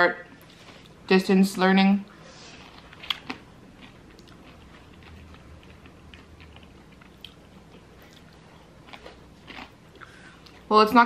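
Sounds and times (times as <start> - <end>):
chewing fries: 2.2 - 10.7.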